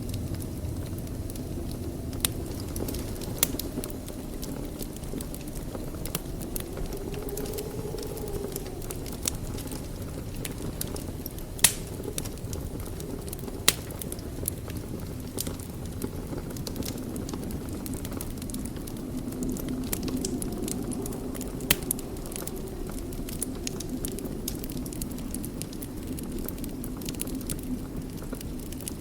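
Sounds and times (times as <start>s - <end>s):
loud wood fire pops: 0.0s - 29.0s
low rumble of fire flames: 0.0s - 29.0s
wood fire crackling: 0.0s - 29.0s.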